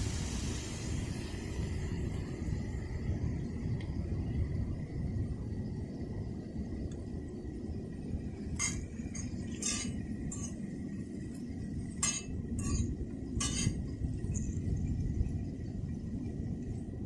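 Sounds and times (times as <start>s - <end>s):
steady low rumble: 0.0s - 17.0s
tableware clinking: 8.6s - 10.6s, 12.0s - 13.8s.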